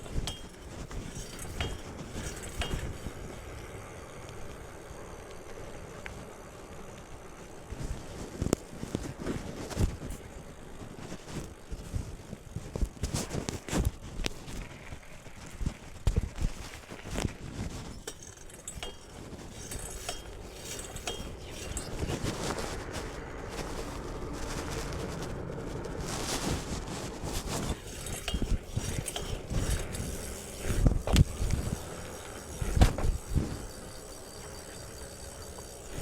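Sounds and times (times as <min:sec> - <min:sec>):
chain and frame clinking: 0:00.0 - 0:03.2, 0:16.9 - 0:22.9, 0:27.3 - 0:32.8
bike tyres rolling on dirt: 0:00.0 - 0:36.0.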